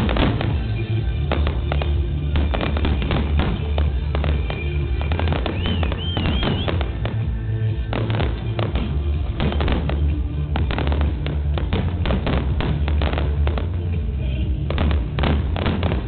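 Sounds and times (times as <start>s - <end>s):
fireworks bangs and crackles: 0.0s - 16.0s
music: 0.0s - 16.0s
firework warbling whistle: 2.5s - 7.2s.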